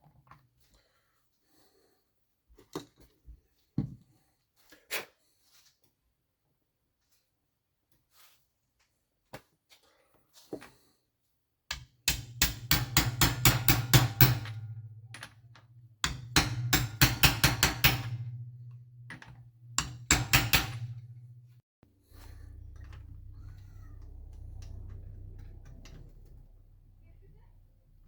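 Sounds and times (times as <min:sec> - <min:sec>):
rapid sharp knocking: 0:12.1 - 0:21.6
low steady hum: 0:12.4 - 0:28.0.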